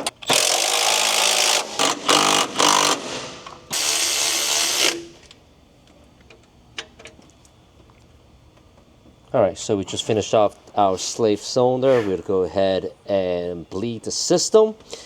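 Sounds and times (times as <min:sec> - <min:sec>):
power tool tightening bolts: 0:00.0 - 0:05.1.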